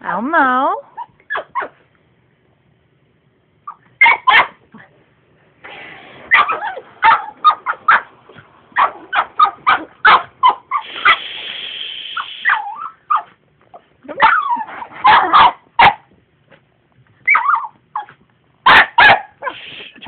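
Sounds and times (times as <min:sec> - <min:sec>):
dog barking: 0:04.0 - 0:04.6, 0:06.3 - 0:08.1, 0:08.8 - 0:11.3, 0:14.2 - 0:16.1, 0:17.3 - 0:19.6
vacuum cleaner running: 0:05.6 - 0:07.1.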